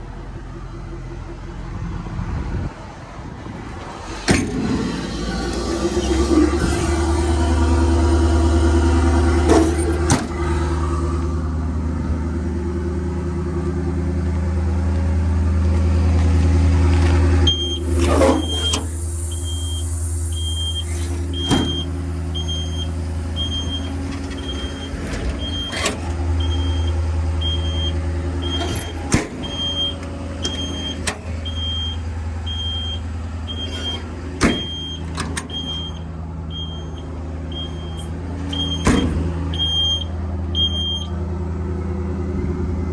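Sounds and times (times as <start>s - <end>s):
diesel engine idling: 0.0s - 42.9s
high-pitched warning alarm beeping: 17.5s - 25.8s, 26.4s - 41.1s
sharp knocks and clunks: 38.5s - 39.5s.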